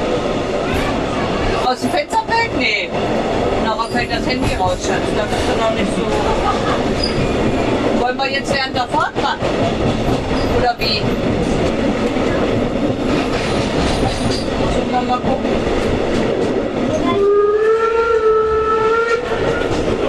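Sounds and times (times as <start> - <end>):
train rumble and wheel clatter: 0.0 - 20.0
train horn: 17.1 - 19.7.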